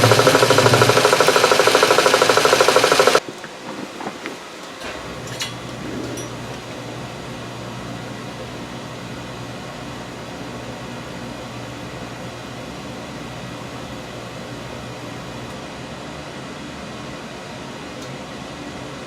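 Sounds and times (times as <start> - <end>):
low machine hum: 0.0 - 3.3.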